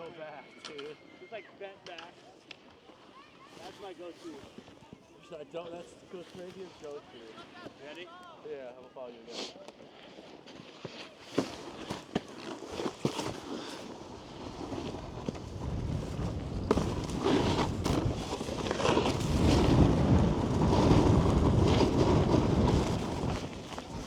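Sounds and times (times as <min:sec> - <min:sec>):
snowboard scraping over snow: 0:09.3 - 0:24.0
wind on microphone: 0:14.5 - 0:24.0.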